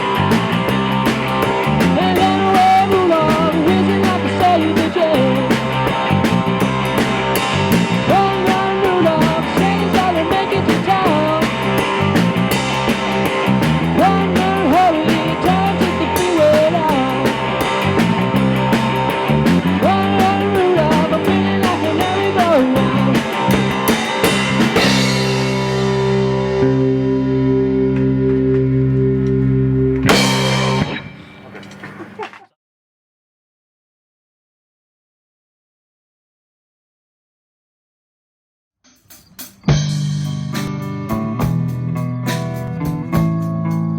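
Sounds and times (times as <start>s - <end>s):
drum and cymbal beat: 0.0s - 26.0s, 30.1s - 30.9s, 38.9s - 43.5s
rock band playing: 0.0s - 32.2s, 39.0s - 43.9s
bending lead guitar line: 0.0s - 32.3s, 39.7s - 43.9s.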